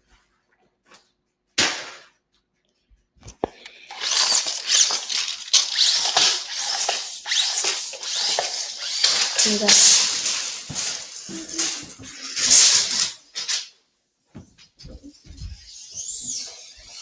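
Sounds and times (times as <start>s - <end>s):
rustling and scraping: 3.3s - 13.8s, 14.4s - 17.0s
squeaky sweeps: 3.9s - 13.6s, 15.5s - 17.0s.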